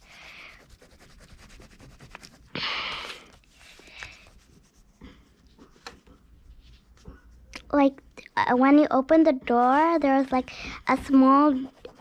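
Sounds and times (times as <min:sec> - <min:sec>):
oil pastel scratching on paper: 0:00.0 - 0:02.6, 0:03.2 - 0:07.5, 0:09.6 - 0:12.0.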